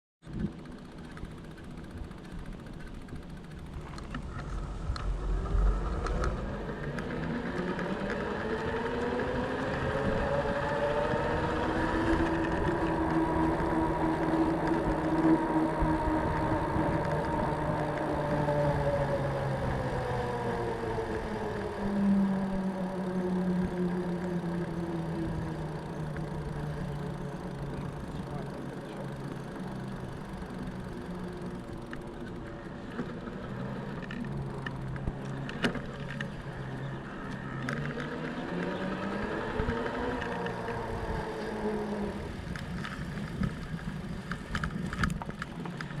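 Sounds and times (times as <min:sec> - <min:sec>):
bike tyres humming on hard surface: 0:00.2 - 0:46.0
rolling rumble: 0:00.2 - 0:46.0.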